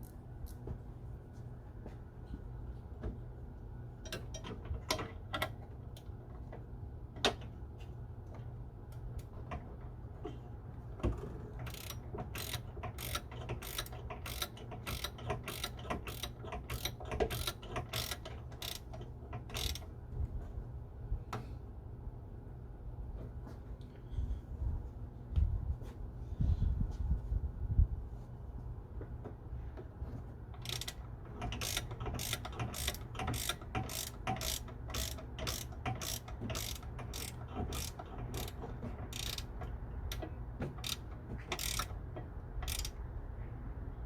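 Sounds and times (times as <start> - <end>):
ratchet wrench clicking: 11.7 - 19.9, 30.6 - 39.5, 40.8 - 42.0, 42.6 - 43.0.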